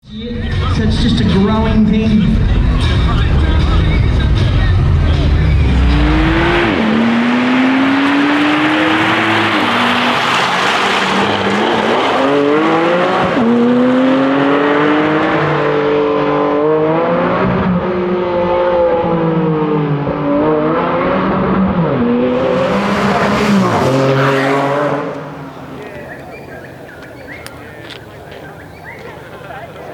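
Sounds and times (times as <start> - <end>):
car engine revving hard: 3.2 - 27.6.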